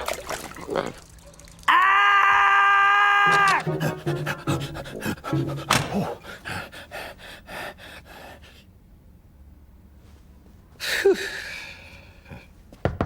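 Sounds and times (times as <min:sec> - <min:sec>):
cartoon character breathy puffs: 0:03.6 - 0:08.5.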